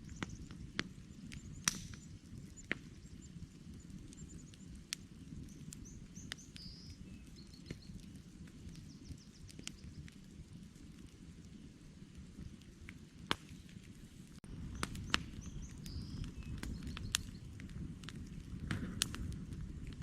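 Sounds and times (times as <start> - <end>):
small birds chirping: 0.0 - 10.4, 14.6 - 17.6
campfire crackling and popping: 0.0 - 20.0.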